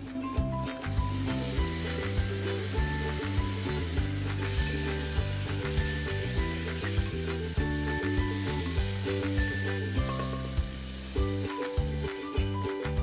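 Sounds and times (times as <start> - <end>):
background music with beat: 0.0 - 13.0
tomato sizzling in oil: 0.0 - 13.0.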